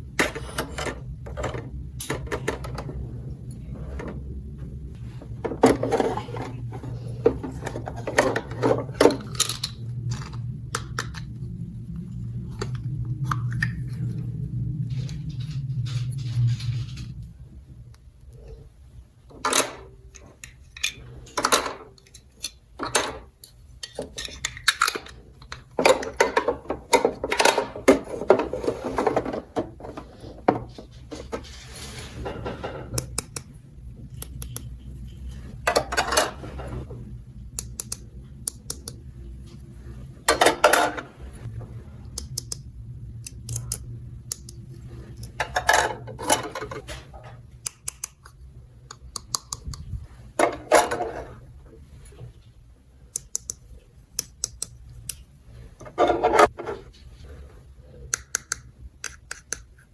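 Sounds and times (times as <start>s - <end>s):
plastic toy pieces clattering: 20.4s - 30.0s.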